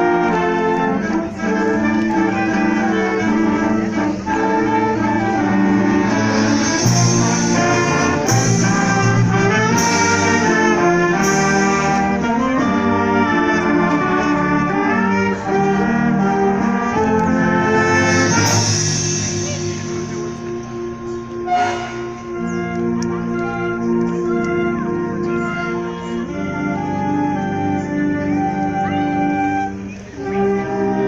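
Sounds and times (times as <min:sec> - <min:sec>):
concert band brass playing: 0:00.0 - 0:31.0
cymbal crashes: 0:21.5 - 0:22.2.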